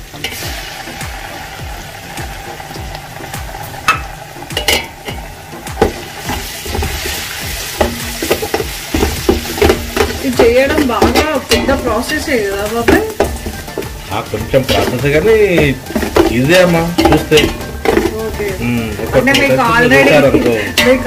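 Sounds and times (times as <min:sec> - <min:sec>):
paste sizzling in hot oil: 0:00.0 - 0:21.0
spoon knocking against pot: 0:03.8 - 0:06.1, 0:07.8 - 0:14.0, 0:14.6 - 0:18.2.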